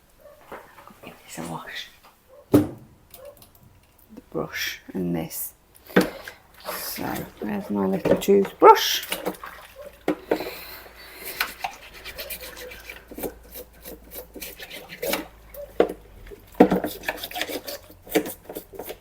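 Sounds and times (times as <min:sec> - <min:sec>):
toothbrush scrubbing plastic: 0:05.9 - 0:19.0.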